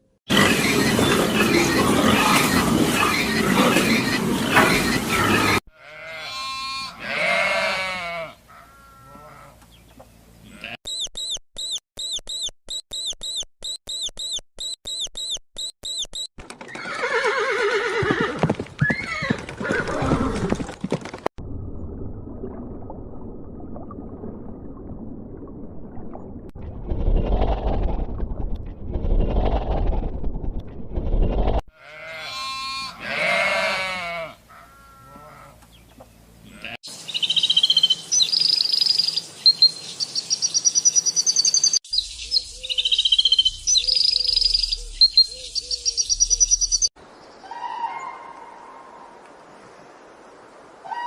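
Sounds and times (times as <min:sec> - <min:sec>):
high animal chirps: 0:10.9 - 0:16.3, 0:37.2 - 0:46.9.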